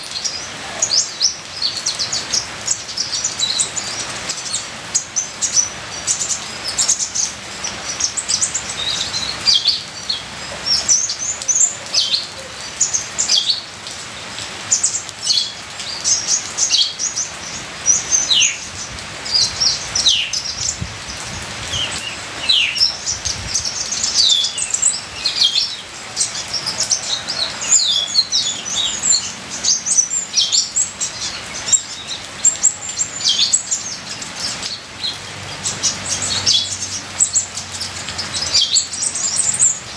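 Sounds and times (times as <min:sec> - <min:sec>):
trickling rain water hiss: 0:00.0 - 0:39.9
sunbird singing high chirps: 0:21.6 - 0:39.9.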